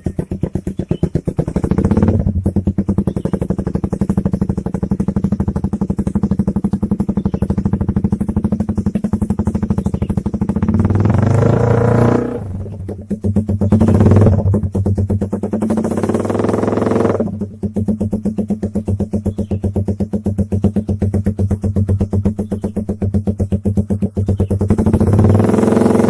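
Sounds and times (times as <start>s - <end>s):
motorcycle engine idling and revving: 0.0s - 26.0s.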